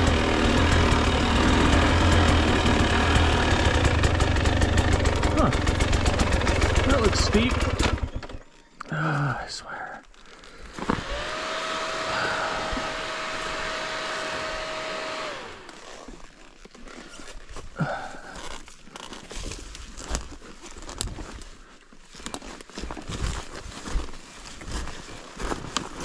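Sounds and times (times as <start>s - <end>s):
dirt bike engine whining: 0.0s - 9.4s, 10.7s - 16.2s
crunches and knocks on rocky ground: 17.2s - 26.0s.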